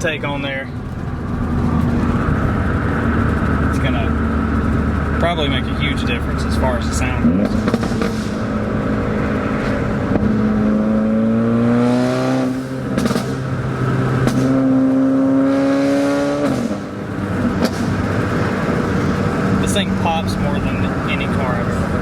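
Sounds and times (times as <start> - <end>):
exhaust pops: 0.0 - 10.9, 11.8 - 15.6, 16.3 - 22.0
car engine revving: 0.0 - 22.0.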